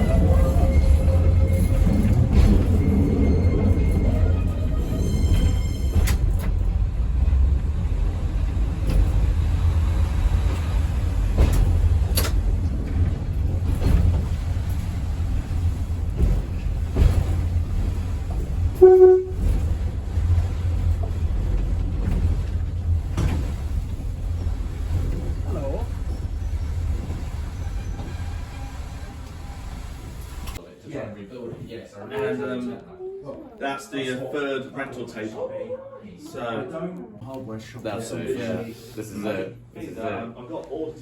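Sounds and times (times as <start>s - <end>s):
train rumbling along track: 0.0s - 30.6s
short train horn toot: 18.8s - 19.6s.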